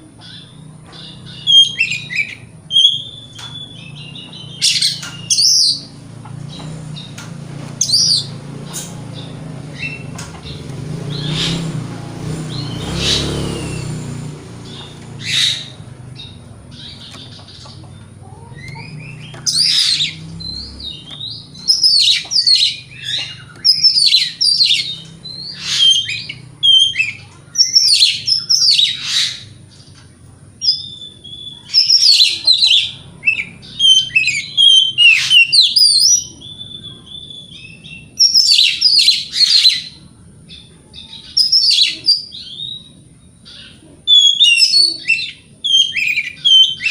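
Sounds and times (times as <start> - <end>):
bird singing varied whistles: 0.4 - 5.9, 18.8 - 29.4, 30.7 - 40.0, 41.3 - 42.9, 44.1 - 46.9.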